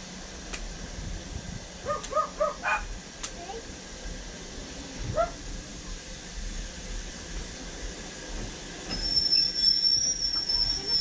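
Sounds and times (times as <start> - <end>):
train wheels rumbling: 0.0 - 11.0
wheels squealing on rails: 7.3 - 11.0.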